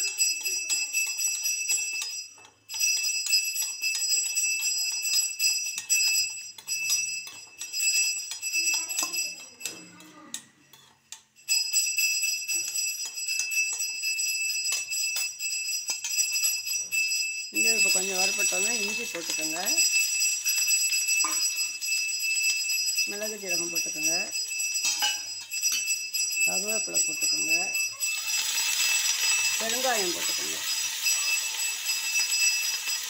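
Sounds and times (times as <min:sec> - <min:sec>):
high-pitched ringing tone: 0:00.0 - 0:10.0, 0:11.4 - 0:33.0
spoon stirring: 0:00.0 - 0:33.0
nuts sizzling in hot oil: 0:17.6 - 0:21.4, 0:28.1 - 0:33.0.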